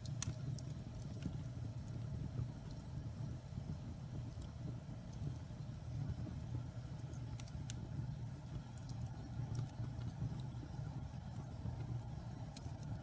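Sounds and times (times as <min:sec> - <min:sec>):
fire crackling and popping: 0:00.0 - 0:13.0
low rumble of flames: 0:00.0 - 0:13.0.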